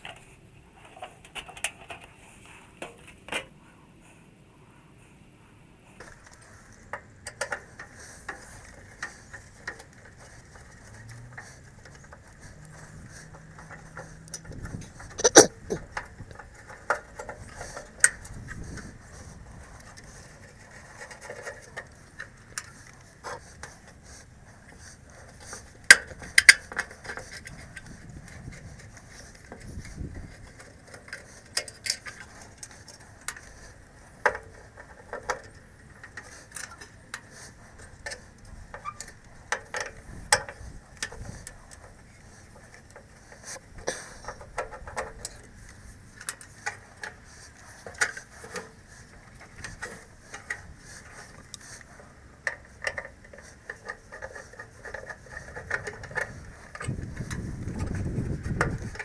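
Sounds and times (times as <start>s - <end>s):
metallic clicks and taps of tools: 6.0s - 18.9s, 19.8s - 28.1s, 28.9s - 59.0s.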